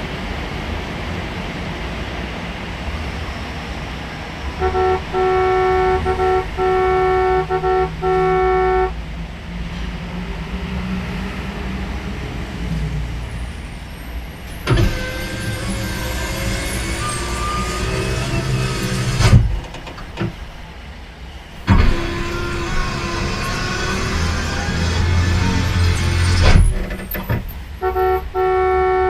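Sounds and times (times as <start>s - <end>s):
low engine rumble: 0.0s - 10.6s
vehicle horn honking: 4.6s - 9.0s, 27.8s - 29.0s.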